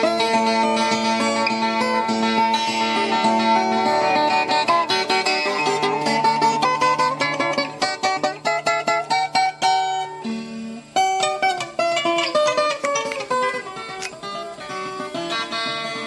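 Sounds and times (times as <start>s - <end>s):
folk guitar plucked runs: 0.0s - 16.0s.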